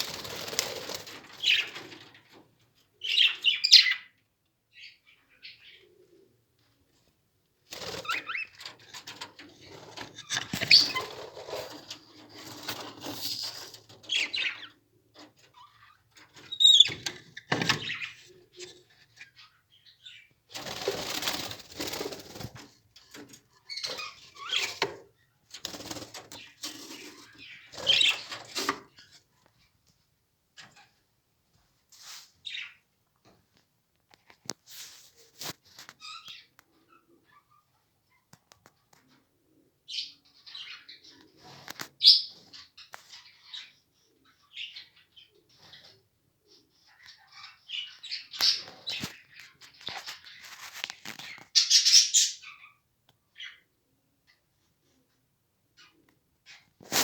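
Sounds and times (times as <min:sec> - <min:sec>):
lovebirds chirping: 0:00.0 - 0:01.8, 0:03.0 - 0:06.0, 0:15.5 - 0:21.9
wings flapping and scuffling: 0:00.0 - 0:02.4, 0:07.7 - 0:14.5, 0:20.5 - 0:29.1, 0:56.8 - 0:57.0.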